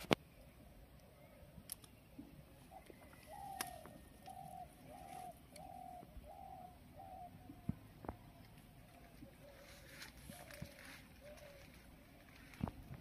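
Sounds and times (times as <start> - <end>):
bird hooting: 2.6 - 12.2.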